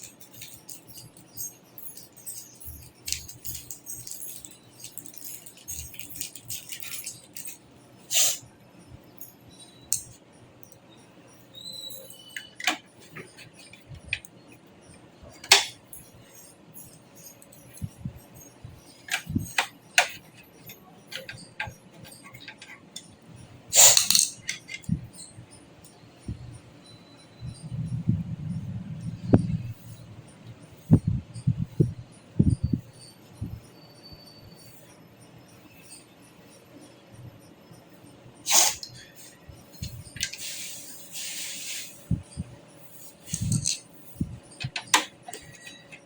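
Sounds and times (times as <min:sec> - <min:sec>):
clicks and clinks of hardware: 0:00.0 - 0:08.4, 0:11.5 - 0:14.5, 0:15.3 - 0:18.0, 0:18.8 - 0:26.0, 0:38.5 - 0:42.2, 0:43.1 - 0:46.0.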